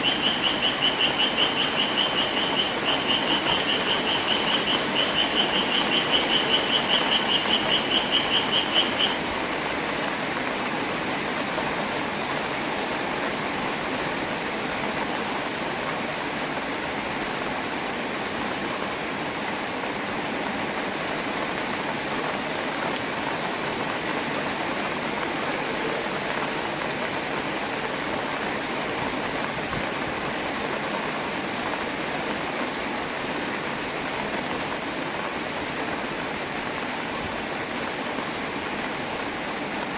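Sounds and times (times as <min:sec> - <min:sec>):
high rapidly pulsing call: 0:00.0 - 0:09.4
steady rain falling: 0:00.0 - 0:39.9.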